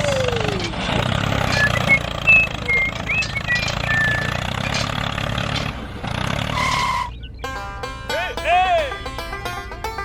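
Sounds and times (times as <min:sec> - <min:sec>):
small engine chugging: 0:00.0 - 0:10.0
high chirps and squeaks: 0:01.5 - 0:04.9, 0:06.6 - 0:07.8.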